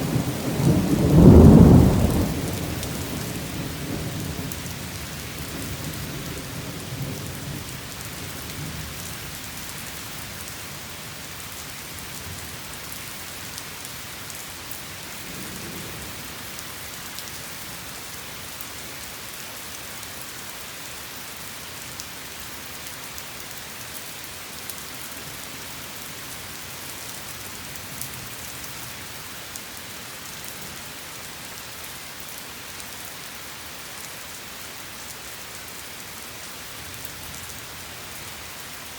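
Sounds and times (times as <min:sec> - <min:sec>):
low thunder rumbling: 0:00.0 - 0:07.9
heavy rain: 0:00.0 - 0:38.9.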